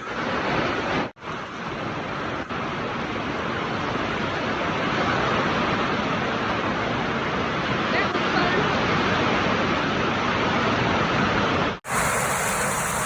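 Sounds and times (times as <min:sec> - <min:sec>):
heavy rain pouring: 0:11.0 - 0:13.0.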